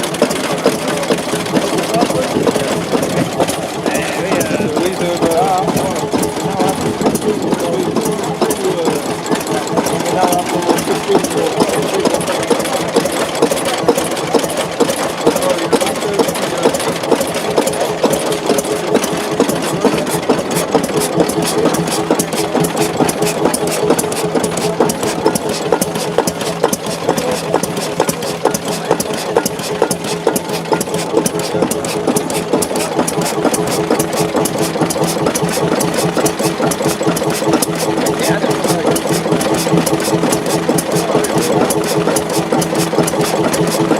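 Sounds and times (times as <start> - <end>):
diesel engine clattering: 0.0 - 43.9.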